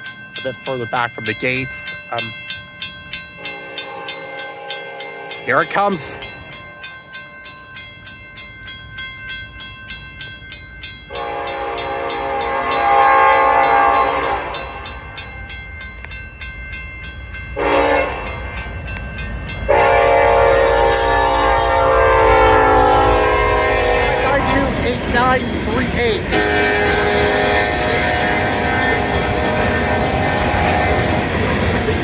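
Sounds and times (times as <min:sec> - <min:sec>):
crossing bell dinging: 0:00.0 - 0:32.0
train rumbling: 0:00.0 - 0:32.0
locomotive horn blasts: 0:11.1 - 0:15.0, 0:17.6 - 0:18.6, 0:19.7 - 0:31.4.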